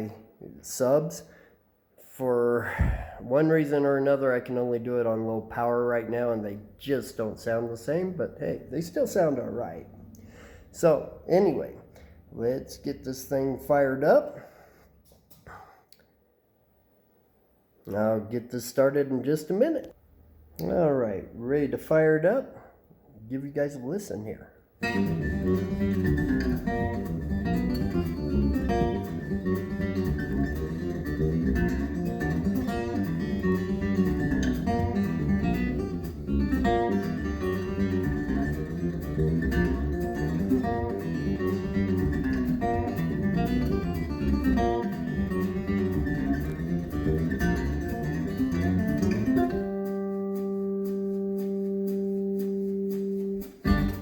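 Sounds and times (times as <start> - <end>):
acoustic guitar music: 24.8 - 54.0.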